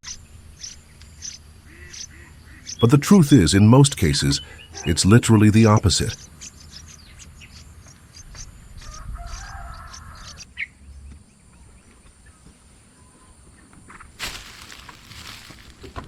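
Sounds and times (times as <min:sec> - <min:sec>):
bird calling: 0:00.0 - 0:10.8.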